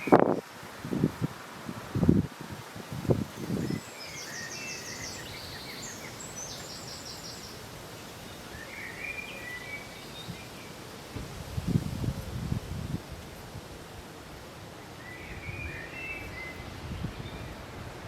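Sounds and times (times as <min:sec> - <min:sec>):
wind buffeting microphone: 0:00.0 - 0:03.9, 0:11.2 - 0:13.8, 0:15.3 - 0:18.0
wind blowing through crops: 0:00.0 - 0:18.0.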